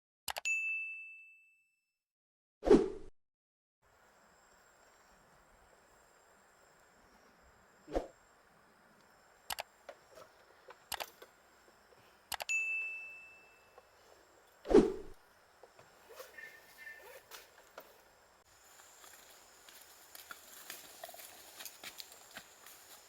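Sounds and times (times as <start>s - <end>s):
metal object ringing ding: 0.5s - 1.8s, 12.5s - 13.8s.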